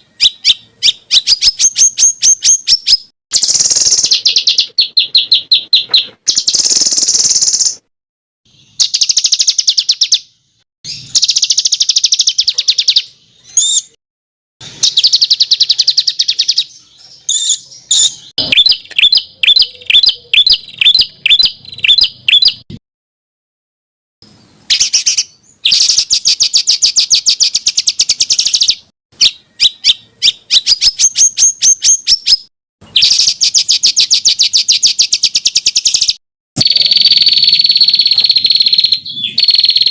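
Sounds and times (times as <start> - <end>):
songbird chattering trills: 0.0 - 7.8, 14.6 - 22.6, 24.7 - 39.9.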